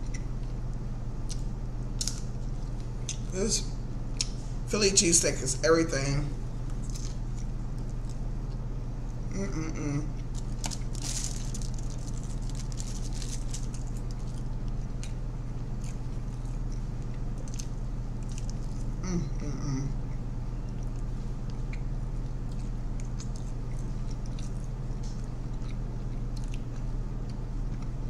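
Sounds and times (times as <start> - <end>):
low electrical hum: 0.0 - 28.0
person humming: 9.3 - 10.2, 19.0 - 20.0
chewing and mouth clicks: 10.1 - 18.9, 20.1 - 28.0.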